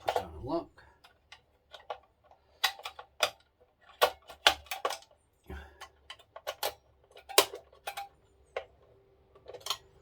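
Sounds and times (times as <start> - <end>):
plastic kit parts clicking: 1.0 - 5.2, 5.8 - 10.0.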